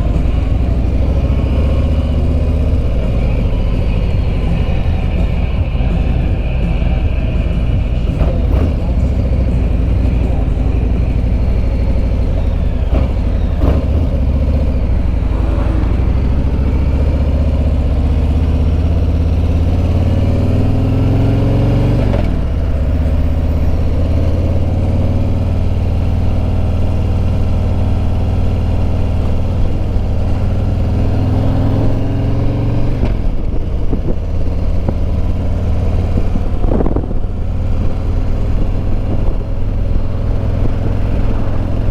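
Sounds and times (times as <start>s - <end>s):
motorcycle engine at road speed: 0.0s - 41.9s
wind noise: 30.9s - 41.9s.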